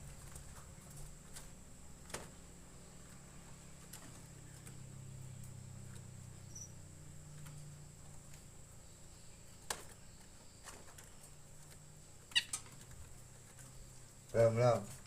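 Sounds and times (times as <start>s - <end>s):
faint low hum: 0.0s - 15.0s
pet bird chirping: 6.4s - 6.8s, 12.1s - 12.8s.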